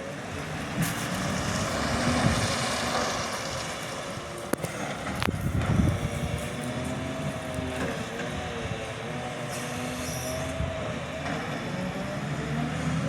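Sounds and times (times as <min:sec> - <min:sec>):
heavy vehicle running with whine: 0:00.0 - 0:13.0
high squeal: 0:09.5 - 0:10.9.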